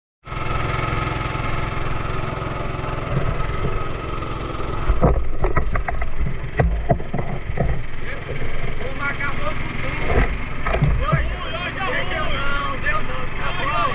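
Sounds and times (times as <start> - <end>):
small boat engine running: 0.2 - 13.9
sharp knocks and thumps: 4.7 - 9.0, 9.9 - 11.4.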